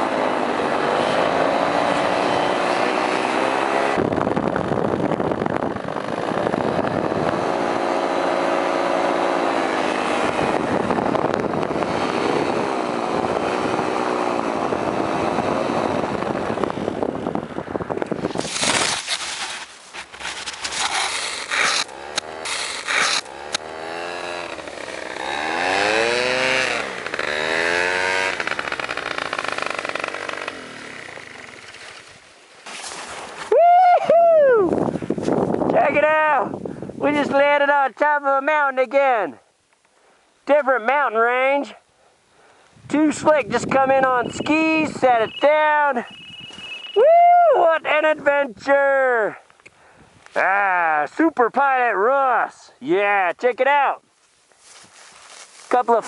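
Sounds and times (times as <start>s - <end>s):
paramotor engine running: 20.6s - 32.2s.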